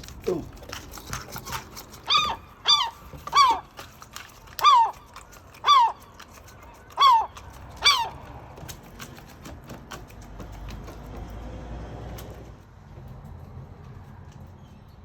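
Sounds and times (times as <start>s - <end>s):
seagull calling: 1.4s - 8.4s.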